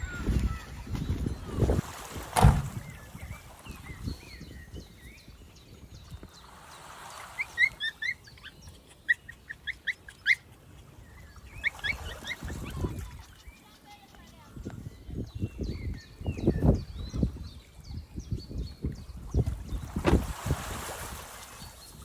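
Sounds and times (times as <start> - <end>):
birds chirping: 0.0 - 20.4
thump: 2.3 - 2.8, 20.0 - 20.4.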